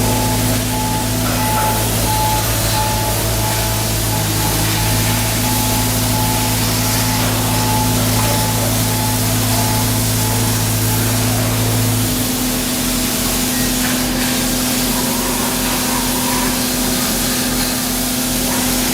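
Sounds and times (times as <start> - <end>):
slow low throbbing: 0.0 - 12.5
heavy machinery humming: 0.0 - 18.9.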